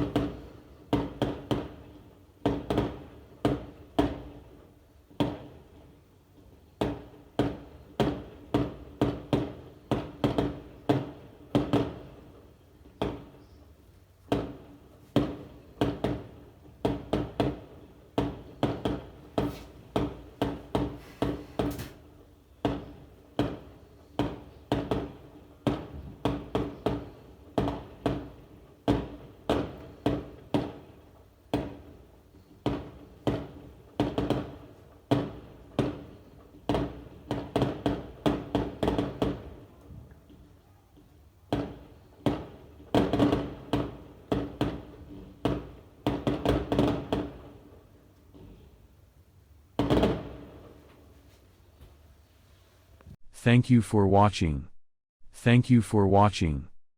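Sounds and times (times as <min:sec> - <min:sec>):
fireworks exploding: 0:00.0 - 0:04.4, 0:14.3 - 0:39.7, 0:41.5 - 0:47.7, 0:49.8 - 0:50.9.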